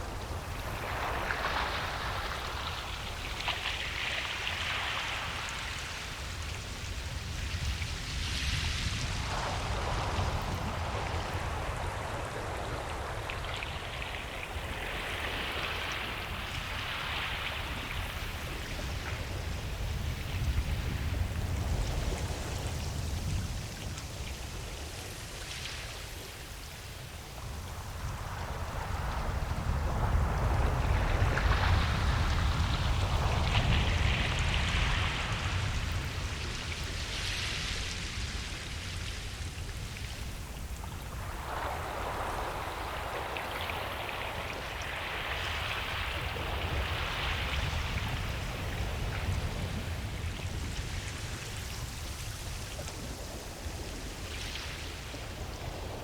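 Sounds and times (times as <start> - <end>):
waves breaking on a beach: 0.0 - 56.0
low surf rumble: 27.0 - 56.0.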